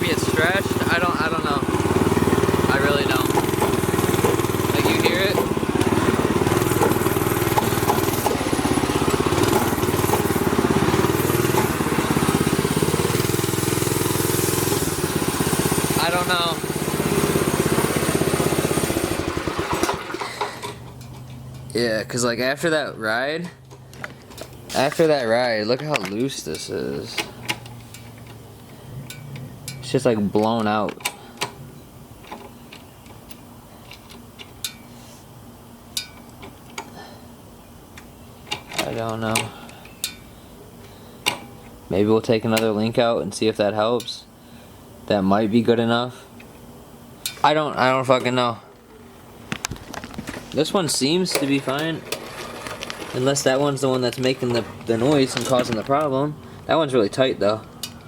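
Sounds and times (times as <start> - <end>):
mini bike engine running: 0.0 - 21.0, 49.8 - 56.4
faint steady hum: 26.1 - 58.0.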